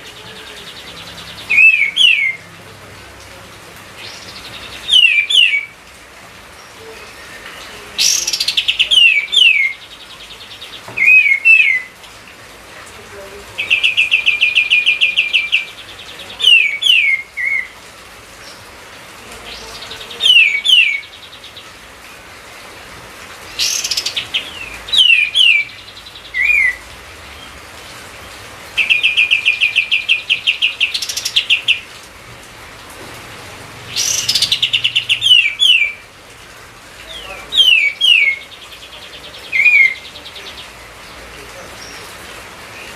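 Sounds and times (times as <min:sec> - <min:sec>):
songbird singing trills and whistles: 0:00.1 - 0:02.5, 0:04.0 - 0:05.8, 0:06.6 - 0:12.0, 0:13.6 - 0:17.8, 0:19.5 - 0:21.7, 0:23.5 - 0:26.8, 0:28.8 - 0:31.9, 0:34.0 - 0:36.0, 0:37.1 - 0:40.8.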